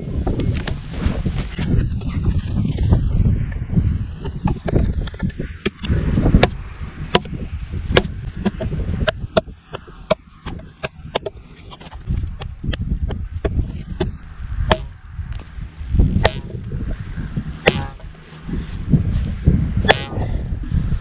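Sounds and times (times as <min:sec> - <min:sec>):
wooden baton knocking knife spine: 0:16.2 - 0:16.5, 0:17.7 - 0:18.2, 0:19.9 - 0:20.3.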